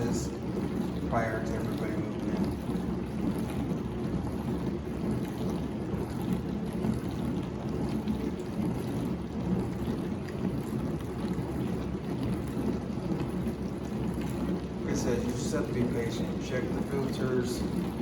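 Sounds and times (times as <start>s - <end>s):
dishwasher water and pump running: 0.0s - 18.0s.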